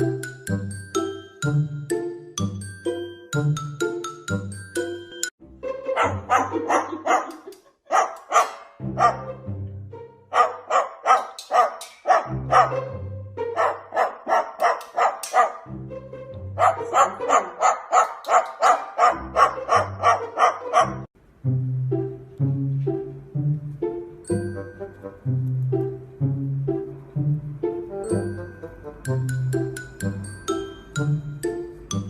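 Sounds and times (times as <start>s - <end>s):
dog barking: 5.9s - 9.4s, 10.3s - 12.8s, 13.5s - 15.7s, 16.6s - 21.1s
background music with bass: 19.2s - 32.0s.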